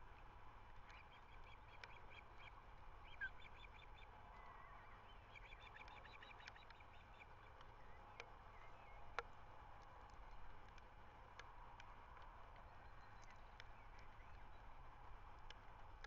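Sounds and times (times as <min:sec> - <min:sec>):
faint bird chirps: 0:00.9 - 0:09.1.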